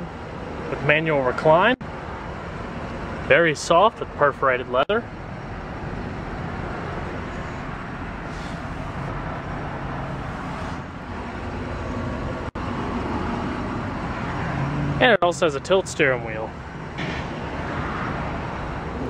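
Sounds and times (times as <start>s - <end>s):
motor vehicle rumble and hiss: 0.0s - 19.0s.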